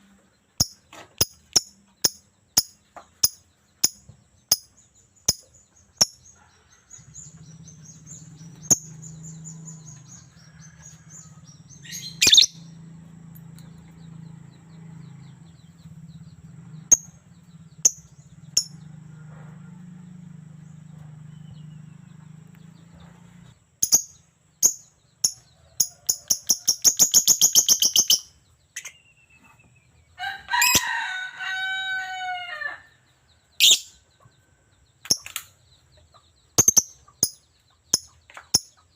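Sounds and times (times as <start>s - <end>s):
lovebird chirping and clicking: 0.6s - 6.4s, 11.9s - 12.6s, 17.8s - 18.8s, 23.8s - 29.0s, 35.0s - 35.6s, 36.6s - 38.7s
rooster crowing: 9.8s - 12.5s, 18.8s - 20.4s, 30.2s - 33.1s.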